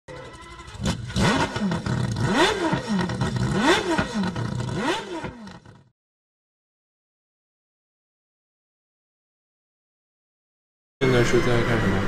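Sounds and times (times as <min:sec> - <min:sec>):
rotary engine revving: 0:00.1 - 0:05.9.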